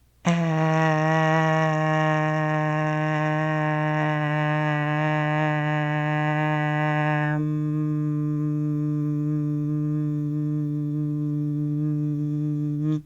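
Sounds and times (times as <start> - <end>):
person holding sung note: 0.0 - 13.0.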